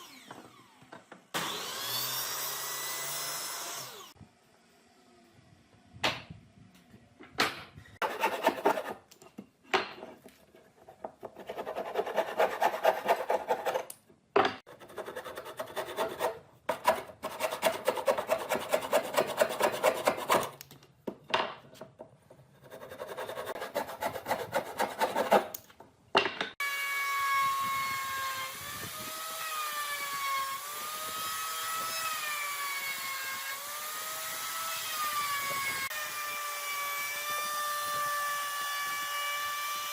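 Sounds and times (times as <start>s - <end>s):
hand scraping wood: 8.0s - 9.1s, 10.1s - 13.9s, 14.8s - 20.6s, 22.3s - 25.6s.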